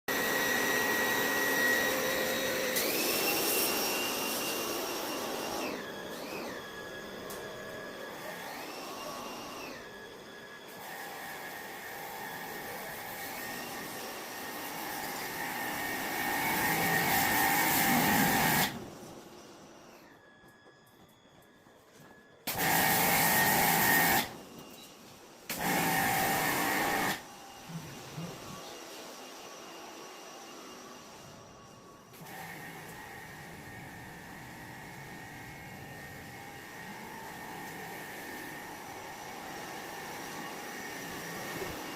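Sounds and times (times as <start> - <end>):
cleaning machine hissing: 0.1 - 19.8, 22.5 - 24.4, 25.2 - 31.5, 32.2 - 41.9.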